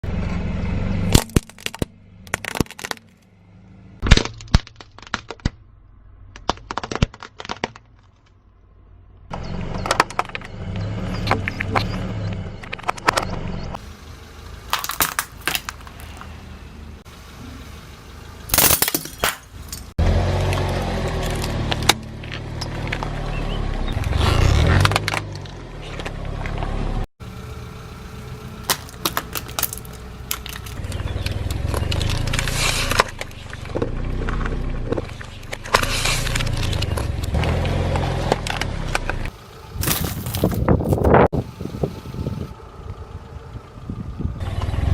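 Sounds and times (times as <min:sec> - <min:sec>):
car engine and tyre rumble: 0:00.0 - 0:44.9
objects cracking under tyres: 0:01.0 - 0:03.3, 0:04.0 - 0:09.1, 0:09.7 - 0:10.5, 0:14.4 - 0:16.6, 0:18.5 - 0:26.8, 0:28.2 - 0:41.3.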